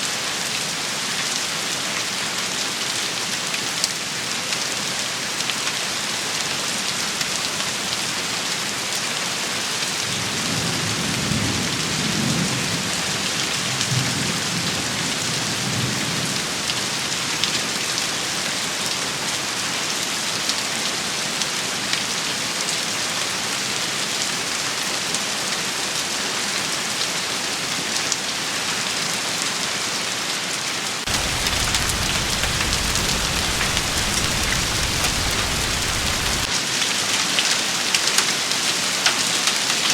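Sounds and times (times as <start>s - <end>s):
distant thunder rumble: 31.1s - 36.5s
rain hissing: 31.1s - 36.5s
steady low rumble: 31.1s - 36.5s.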